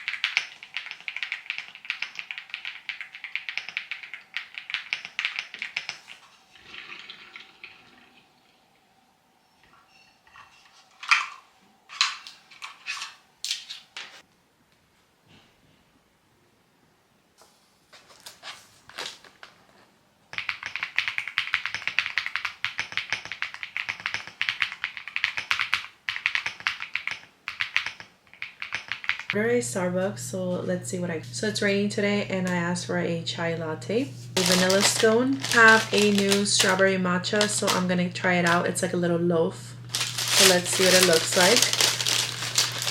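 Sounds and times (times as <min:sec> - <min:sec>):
typing on computer keyboard: 0:00.0 - 0:06.2, 0:20.3 - 0:29.4.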